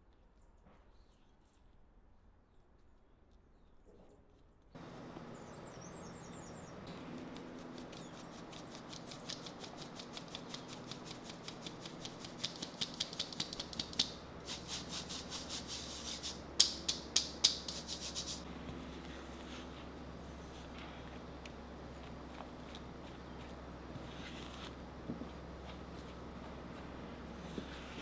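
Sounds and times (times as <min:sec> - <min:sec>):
whisk clicking against bowl: 0:07.3 - 0:18.4.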